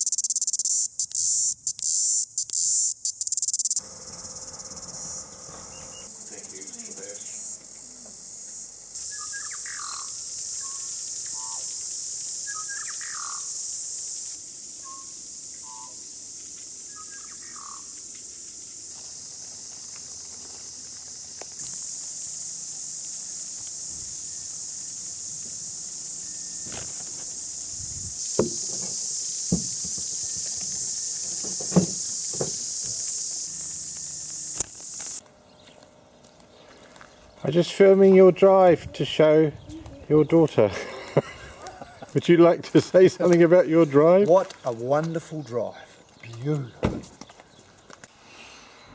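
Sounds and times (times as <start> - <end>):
high-pitched insect chorus: 0.0 - 48.0
short bird chirps: 9.0 - 11.7, 12.4 - 13.5
sharp knocks: 28.3 - 33.0.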